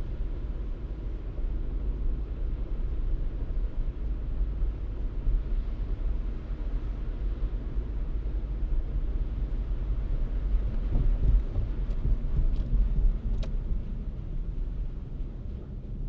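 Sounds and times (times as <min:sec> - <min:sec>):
car driving rumble: 0:09.5 - 0:16.0.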